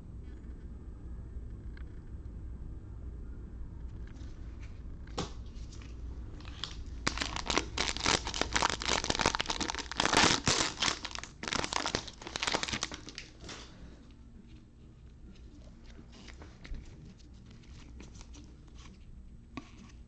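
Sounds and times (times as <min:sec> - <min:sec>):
wrapper crinkling and tearing: 0:06.4 - 0:13.6.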